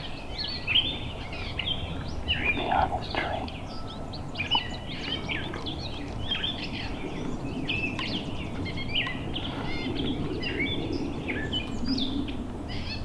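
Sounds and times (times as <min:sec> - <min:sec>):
songbirds singing and chirping: 0:00.0 - 0:13.0
steady low background rush: 0:02.0 - 0:07.6.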